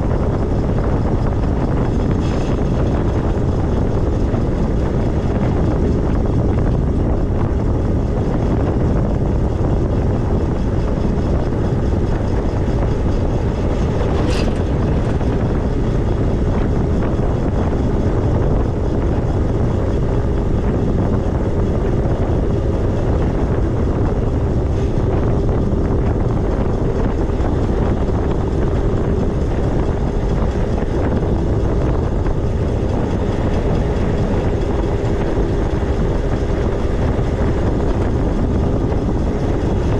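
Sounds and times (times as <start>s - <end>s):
faint steady whine: 0.0s - 39.9s
wind rush on microphone: 0.0s - 39.9s
brief high squeak: 14.2s - 14.7s.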